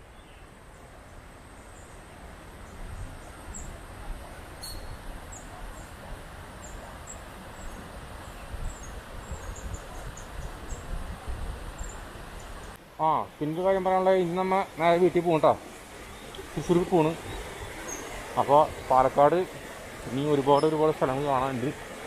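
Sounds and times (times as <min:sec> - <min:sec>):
steady rushing noise: 0:02.1 - 0:22.0
wind rumble on microphone: 0:02.6 - 0:12.8.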